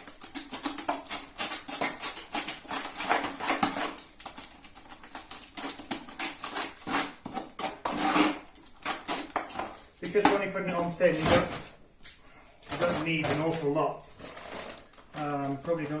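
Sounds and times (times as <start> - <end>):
paste mixed in a bucket: 0.0 - 11.9, 12.6 - 16.0.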